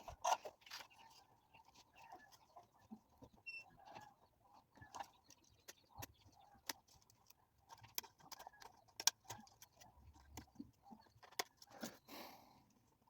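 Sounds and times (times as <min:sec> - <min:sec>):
small clicks and taps: 0:04.8 - 0:11.9.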